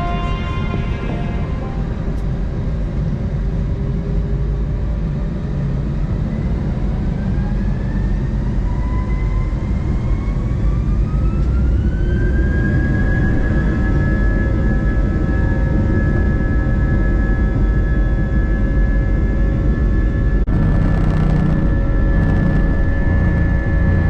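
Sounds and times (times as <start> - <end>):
jet engines spooling up: 19.9 - 24.0.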